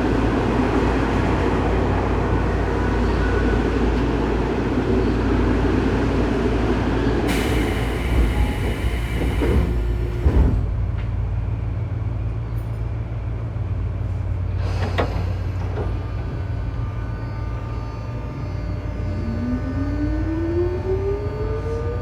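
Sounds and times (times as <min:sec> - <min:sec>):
train control gear hum: 0:07.3 - 0:11.1.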